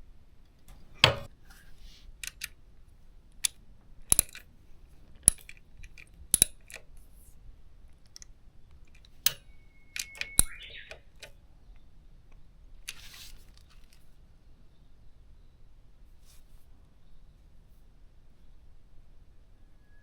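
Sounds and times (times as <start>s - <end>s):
metal tools clinking: 9.0s - 11.2s.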